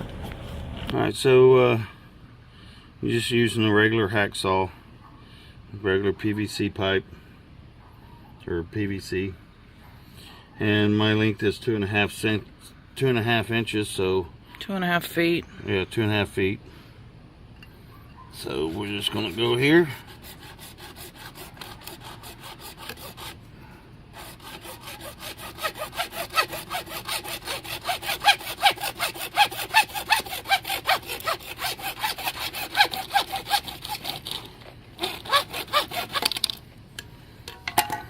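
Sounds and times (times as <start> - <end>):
hacksaw cutting plastic pipe: 18.5 - 23.4, 24.1 - 36.6.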